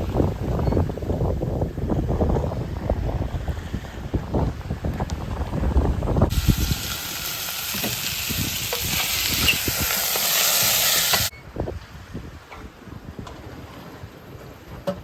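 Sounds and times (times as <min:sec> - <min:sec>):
wind buffeting microphone: 0:00.0 - 0:15.0
loud steady hiss: 0:06.3 - 0:11.3.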